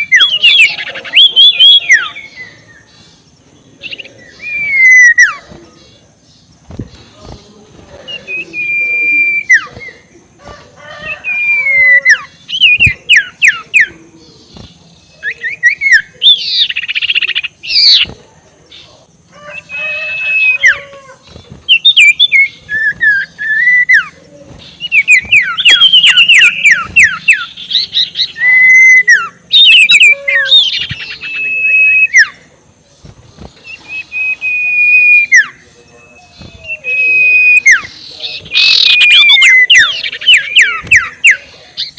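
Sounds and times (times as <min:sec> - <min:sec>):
owl cackling calls: 0:08.5 - 0:13.9, 0:19.3 - 0:32.5, 0:33.6 - 0:41.9.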